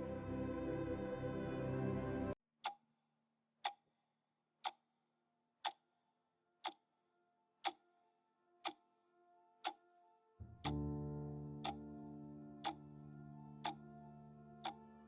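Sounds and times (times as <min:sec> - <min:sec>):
clock-like ticking: 0:11.6 - 0:11.8, 0:12.6 - 0:12.8, 0:13.6 - 0:13.8.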